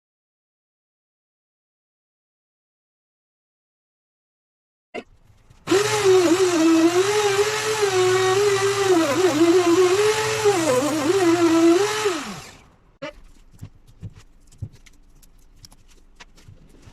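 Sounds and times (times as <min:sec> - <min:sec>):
electric power tool motor: 0:05.7 - 0:12.7.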